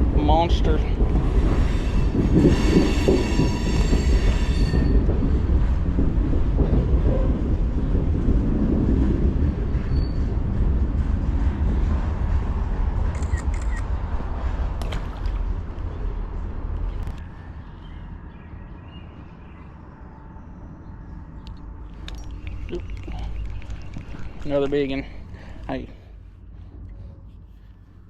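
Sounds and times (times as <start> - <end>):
train wheels rumbling on rails: 0.0 - 18.5, 21.9 - 28.0
metallic wheel squeal: 1.5 - 5.1, 9.9 - 10.3.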